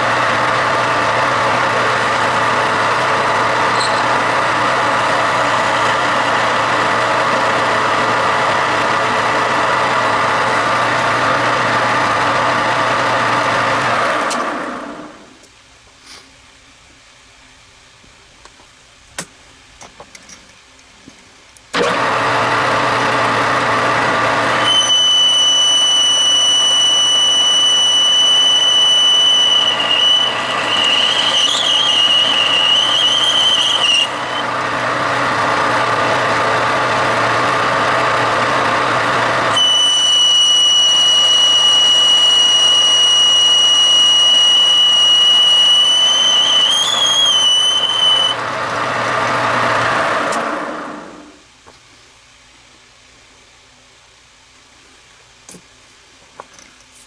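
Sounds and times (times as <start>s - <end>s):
machine tool running: 0.0s - 14.2s, 21.9s - 49.8s
high squeal of boring bar chatter: 0.9s - 10.7s, 24.4s - 34.4s, 39.5s - 48.4s.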